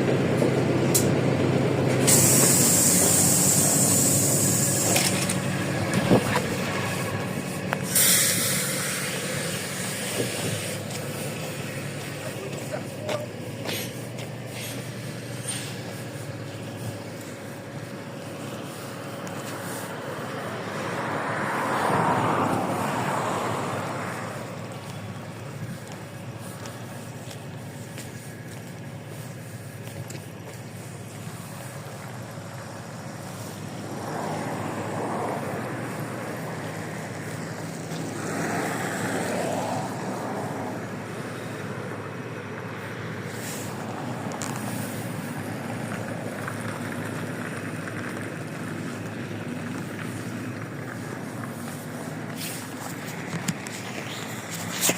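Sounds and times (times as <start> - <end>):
bus diesel engine running: 0.0 - 54.9
constant rushing noise: 0.0 - 54.9
road noise: 0.0 - 54.9
loud hissing: 1.9 - 5.8, 6.5 - 20.0.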